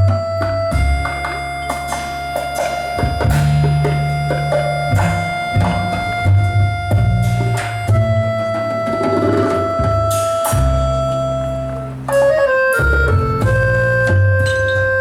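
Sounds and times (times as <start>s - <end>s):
drum and percussion hits: 0.0s - 10.9s
double bass notes: 0.0s - 15.0s
held melody note: 0.0s - 15.0s.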